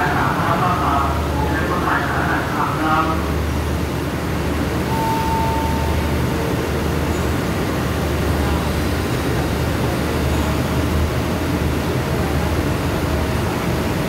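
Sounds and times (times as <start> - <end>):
train engines idling: 0.0 - 14.0
short faint tone: 4.9 - 6.4.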